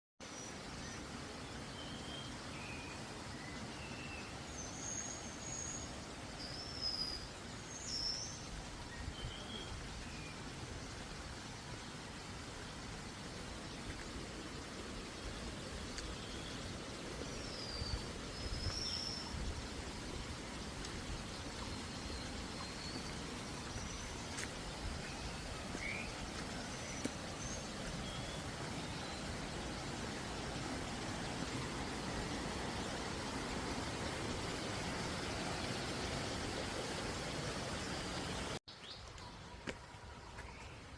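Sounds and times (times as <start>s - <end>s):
low background hiss: 0.2s - 40.9s
birds whistling thin notes: 20.9s - 30.4s.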